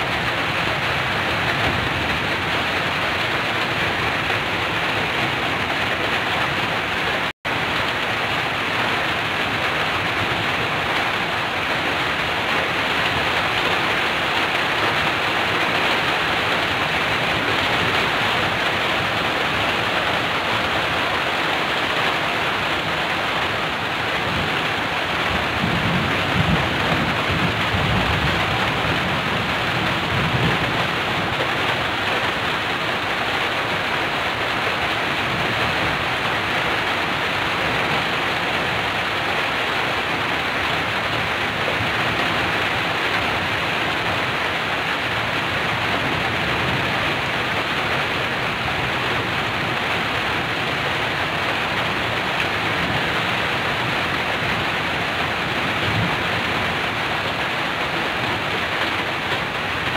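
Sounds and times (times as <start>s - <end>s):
heavy rain on a tin roof: 0.0s - 59.9s
thunder rumble: 9.2s - 33.1s.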